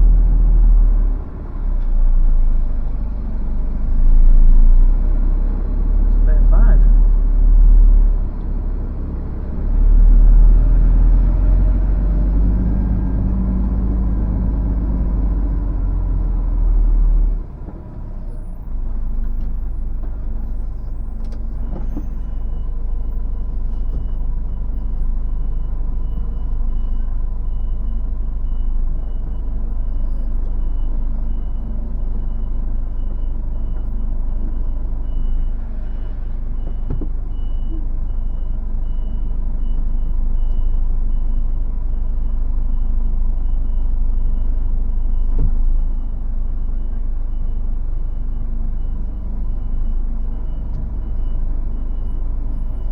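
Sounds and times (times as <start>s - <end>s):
lorry diesel engine rumbling: 0.0s - 52.9s
reversing alarm beeps: 20.9s - 52.9s.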